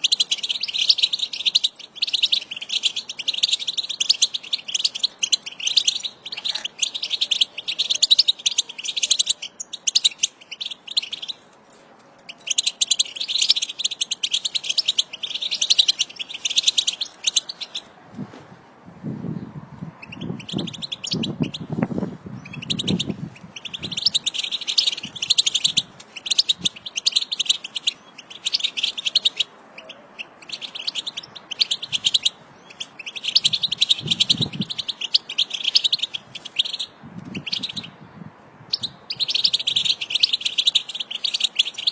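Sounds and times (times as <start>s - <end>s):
finches twittering: 0.0s - 11.4s, 22.4s - 38.0s, 38.7s - 41.9s.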